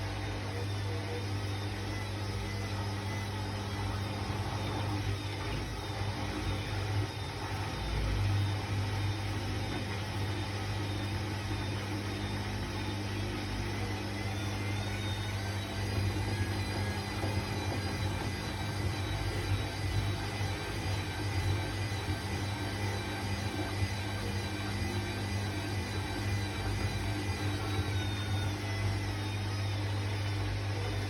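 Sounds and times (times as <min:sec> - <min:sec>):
washing machine humming: 0:00.0 - 0:31.0.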